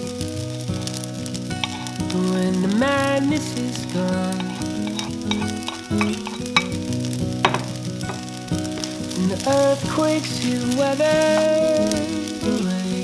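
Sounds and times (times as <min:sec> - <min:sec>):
background music: 0:00.0 - 0:13.0
fried rice sizzling in a pan: 0:00.0 - 0:13.0.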